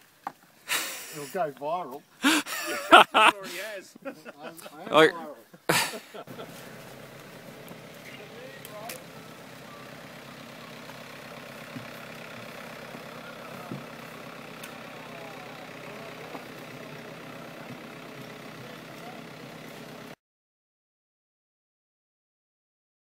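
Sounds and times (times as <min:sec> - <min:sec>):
engine idling: 0:05.6 - 0:20.2.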